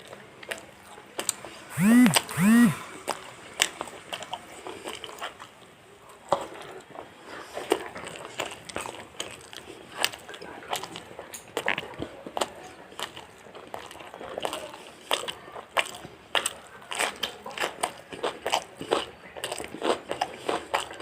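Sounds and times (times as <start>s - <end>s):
person humming: 1.7s - 2.8s.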